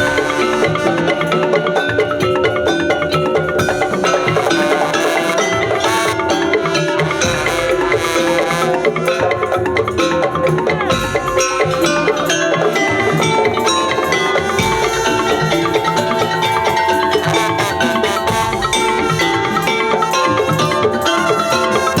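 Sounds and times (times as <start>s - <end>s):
drum ensemble playing: 0.0s - 22.0s
held melodic tones: 0.0s - 22.0s.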